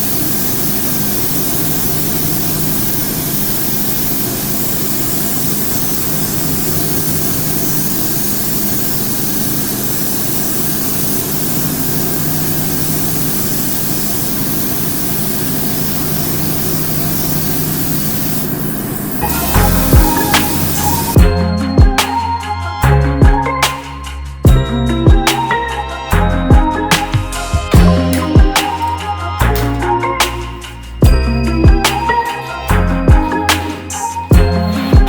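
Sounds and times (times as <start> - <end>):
machine humming with hiss: 0.0 - 21.2, 27.0 - 29.8.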